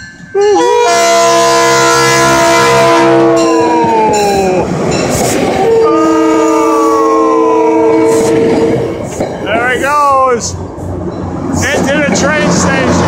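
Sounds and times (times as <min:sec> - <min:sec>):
passing train rumble: 0:00.0 - 0:13.0
train horn blasts: 0:00.5 - 0:04.0, 0:05.6 - 0:08.9.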